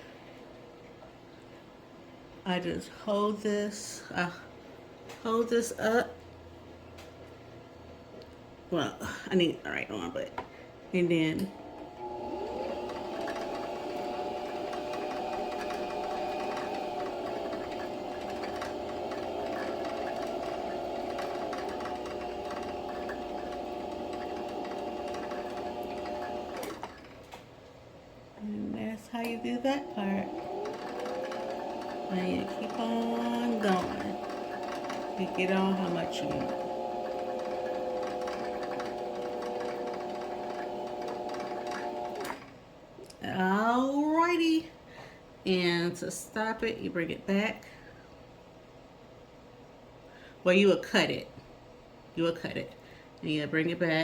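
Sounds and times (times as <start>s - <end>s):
sewing machine motor humming: 11.4s - 27.2s, 29.1s - 42.5s.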